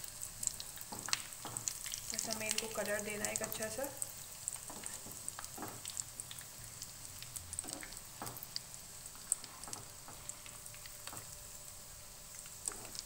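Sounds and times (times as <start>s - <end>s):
cutlets sizzling in oil: 0.0s - 13.0s
spatula knocking in pan: 0.9s - 1.8s, 4.6s - 5.9s, 7.6s - 8.5s.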